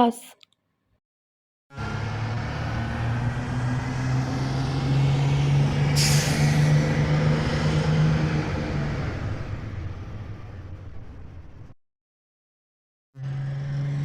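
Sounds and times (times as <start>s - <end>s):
air brakes hissing: 6.0s - 6.8s.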